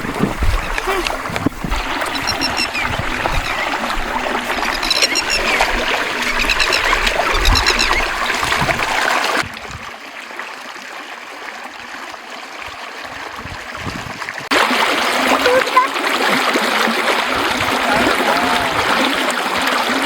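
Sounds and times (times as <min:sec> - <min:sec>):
water splashing and trickling: 0:00.0 - 0:20.0
high chirps: 0:01.8 - 0:08.4.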